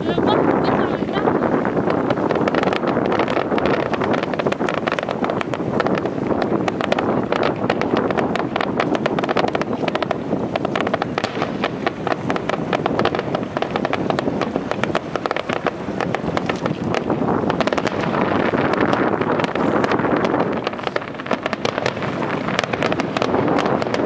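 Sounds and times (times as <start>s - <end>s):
fireworks crackling: 0.0s - 24.0s
wind buffeting microphone: 0.0s - 24.0s.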